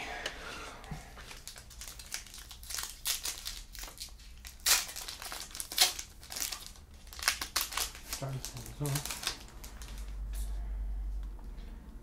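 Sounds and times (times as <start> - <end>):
foil wrapper crinkling: 1.3 - 10.2.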